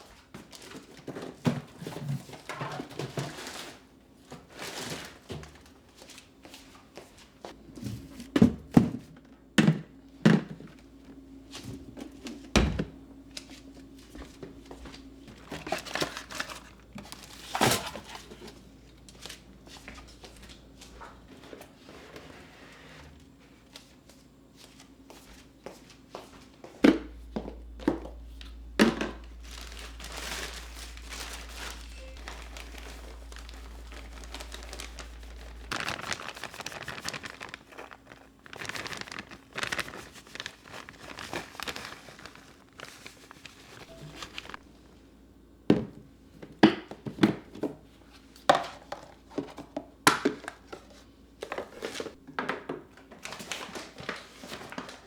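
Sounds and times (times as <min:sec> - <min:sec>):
packaging crinkling: 0:28.6 - 0:44.7.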